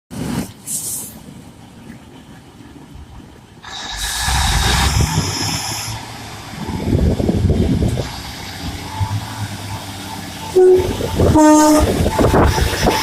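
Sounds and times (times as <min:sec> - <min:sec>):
diesel train rumbling: 0:00.1 - 0:13.0
loud air hiss: 0:03.6 - 0:06.3.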